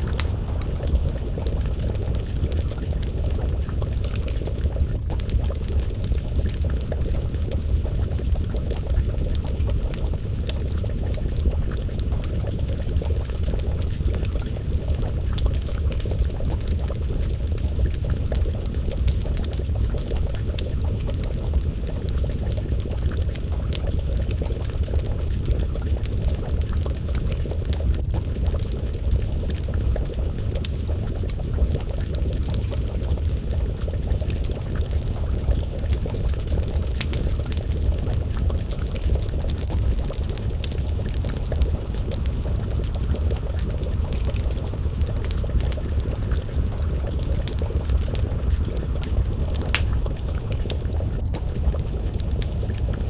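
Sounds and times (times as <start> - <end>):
stew simmering and bubbling: 0.0 - 53.0
wood fire crackling: 0.0 - 53.0.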